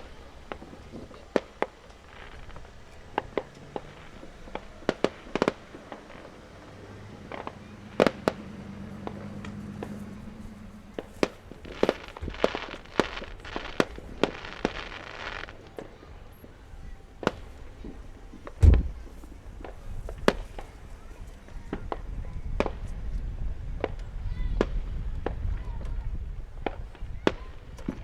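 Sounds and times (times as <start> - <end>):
fireworks bangs and pops: 0.0 - 28.0
fireworks crackling: 0.0 - 28.0
deep firework boom: 2.2 - 15.9, 17.2 - 20.8.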